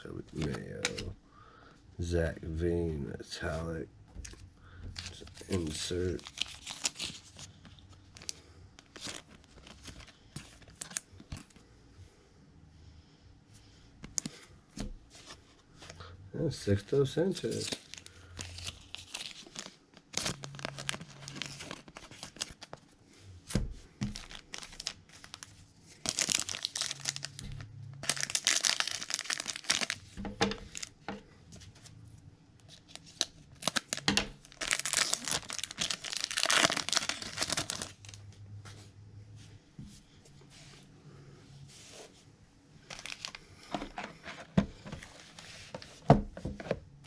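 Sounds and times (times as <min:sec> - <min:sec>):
cards being handled: 0:00.3 - 0:01.1
foil wrappers tearing and crinkling: 0:05.0 - 0:11.0, 0:17.3 - 0:22.7, 0:24.0 - 0:31.0, 0:32.7 - 0:38.2, 0:42.9 - 0:43.4.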